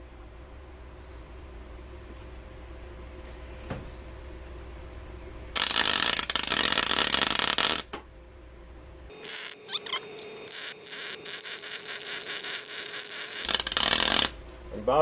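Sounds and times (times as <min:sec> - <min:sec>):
welding arc crackling: 0:09.1 - 0:13.5.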